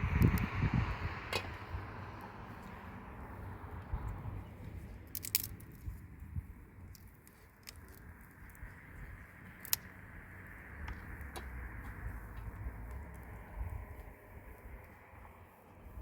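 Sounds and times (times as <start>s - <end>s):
sharp clicks and cracks: 5.0s - 6.0s, 6.9s - 9.9s.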